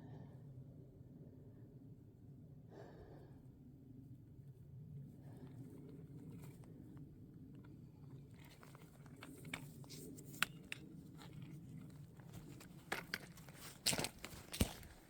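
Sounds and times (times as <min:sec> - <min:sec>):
footsteps on gravel: 0:12.3 - 0:15.0.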